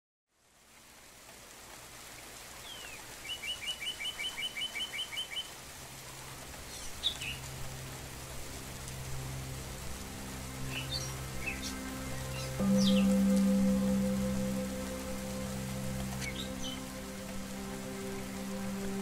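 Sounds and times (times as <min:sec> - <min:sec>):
steady soft hiss: 0:05.2 - 0:19.0
low music drone: 0:06.1 - 0:19.0.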